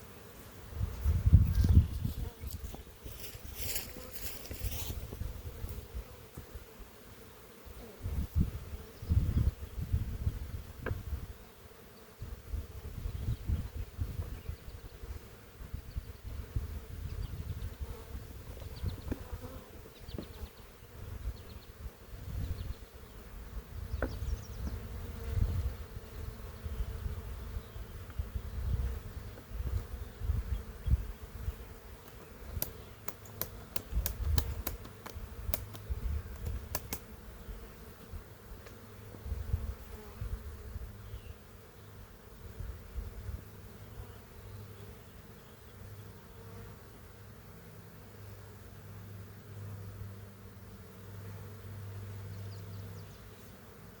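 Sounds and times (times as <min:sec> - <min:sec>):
honeybees buzzing: 0:00.0 - 0:54.0
sharp clicks: 0:32.0 - 0:37.1.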